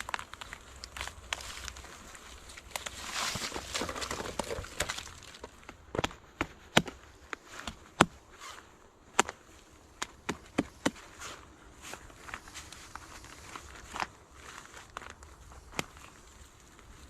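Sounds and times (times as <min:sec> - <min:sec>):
wood being chopped: 0:02.6 - 0:08.2, 0:09.1 - 0:09.4, 0:10.0 - 0:11.0.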